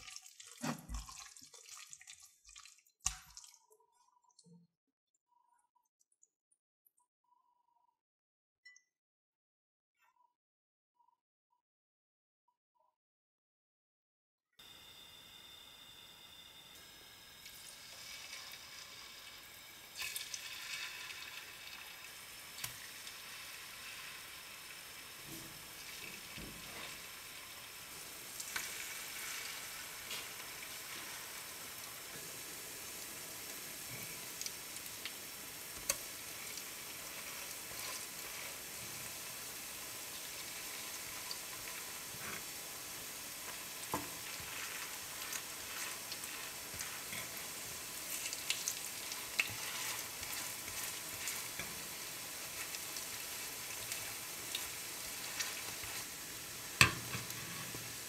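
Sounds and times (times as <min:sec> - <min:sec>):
fritters sizzling in oil: 0:14.7 - 0:58.0
metal fork knocking on pan: 0:56.8 - 0:57.2.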